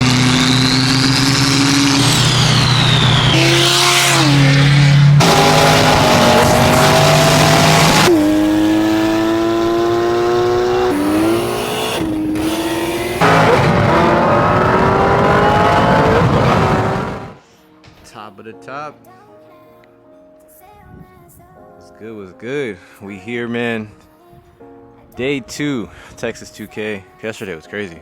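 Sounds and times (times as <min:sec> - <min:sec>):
car engines revving hard: 0:00.0 - 0:17.4
high whistle: 0:00.2 - 0:04.7.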